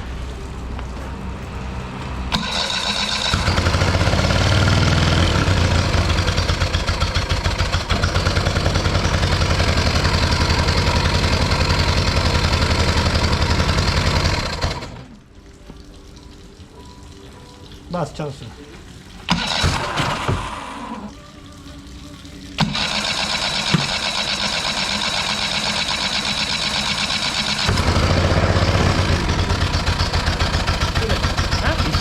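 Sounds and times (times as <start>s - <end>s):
outboard motor starting and running: 2.1s - 15.3s, 19.2s - 21.3s, 21.9s - 32.0s.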